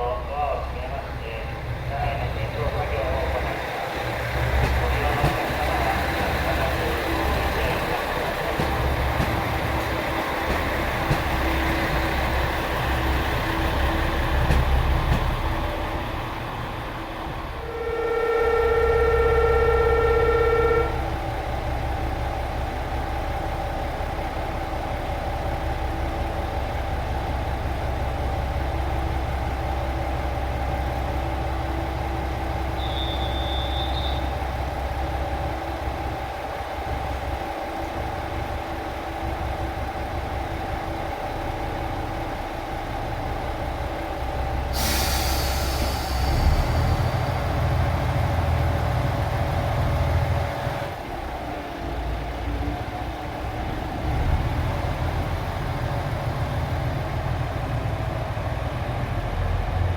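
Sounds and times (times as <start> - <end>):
train engine rumble: 0.0 - 59.9
short high beep: 17.6 - 21.1
train horn blast: 17.6 - 21.3, 32.8 - 34.3.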